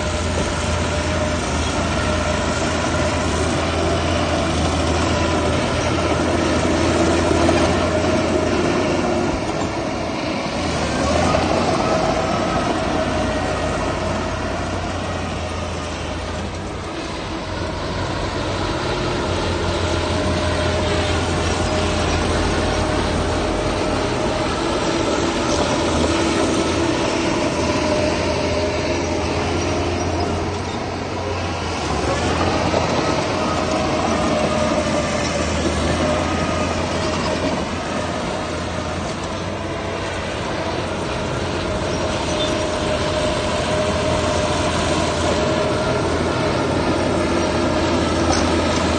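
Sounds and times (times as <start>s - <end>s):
heavy diesel machinery running: 0.0s - 48.9s.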